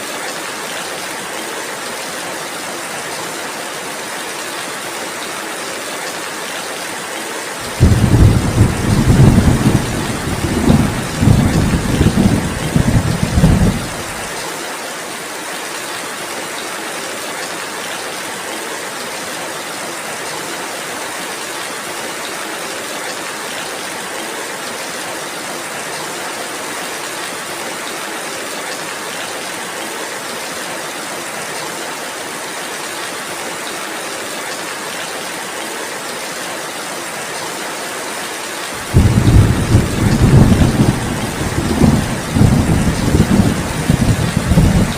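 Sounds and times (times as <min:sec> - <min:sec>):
steady rainfall: 0:00.0 - 0:44.9
thunder rumbling: 0:07.7 - 0:14.3, 0:38.8 - 0:44.9.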